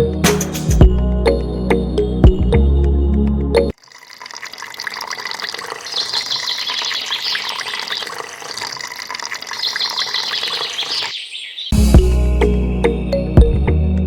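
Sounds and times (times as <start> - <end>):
stream water splashing: 3.7 - 11.7.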